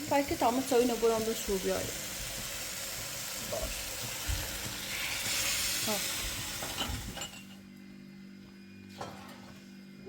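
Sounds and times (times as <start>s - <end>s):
glass and dishes clinking: 6.6s - 7.6s.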